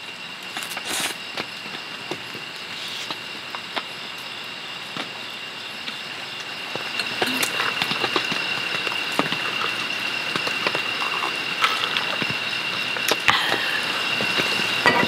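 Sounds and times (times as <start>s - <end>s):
rain pattering on a tent: 0.4s - 14.8s
thin high tone: 7.0s - 8.0s.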